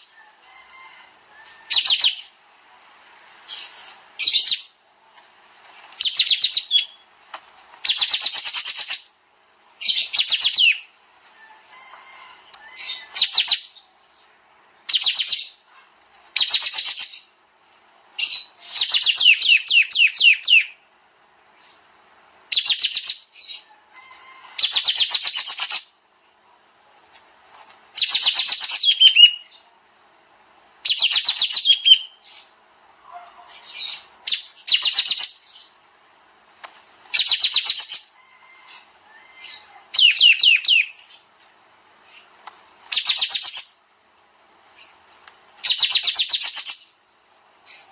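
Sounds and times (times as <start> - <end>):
songbird trilling: 6.0 - 7.0, 7.8 - 9.2, 9.8 - 10.9, 12.6 - 13.9, 14.9 - 15.6, 16.4 - 17.3, 18.2 - 20.8, 22.5 - 26.0, 28.0 - 29.7, 30.9 - 32.6, 33.4 - 35.8, 37.1 - 41.3, 42.1 - 43.8, 45.6 - 47.0.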